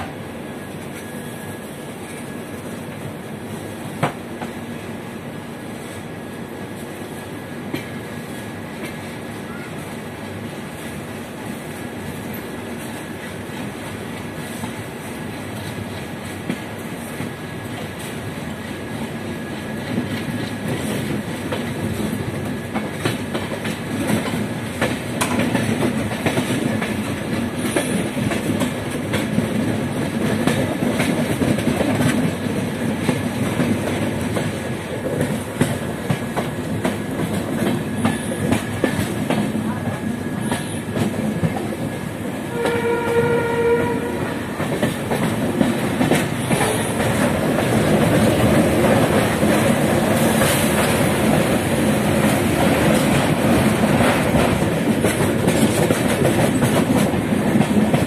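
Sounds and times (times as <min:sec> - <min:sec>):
train wheels rumbling on rail: 0:00.0 - 0:58.0
train horn: 0:42.4 - 0:44.6.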